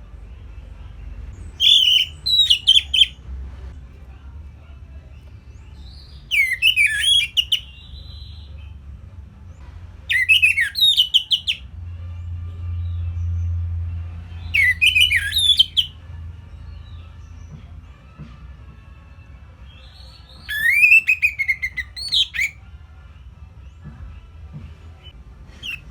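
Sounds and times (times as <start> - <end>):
thrush singing whistled notes: 1.4 - 3.2, 5.8 - 8.8, 10.1 - 11.7, 14.4 - 16.0, 19.7 - 22.6, 25.0 - 25.9.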